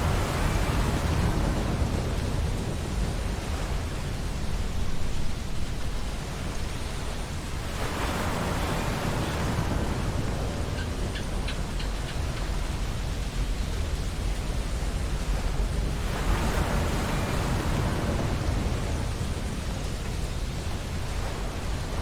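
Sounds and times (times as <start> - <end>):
ocean surf on a beach: 0.0 - 22.0.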